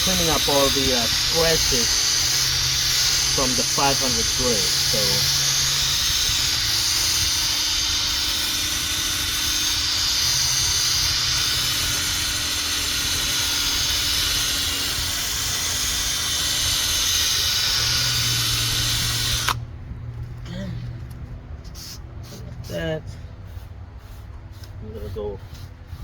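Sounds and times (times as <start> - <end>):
sanding pad hissing on plastic: 0.0 - 19.6, 21.7 - 22.8, 23.4 - 26.0
electric drill motor hum: 0.0 - 19.7.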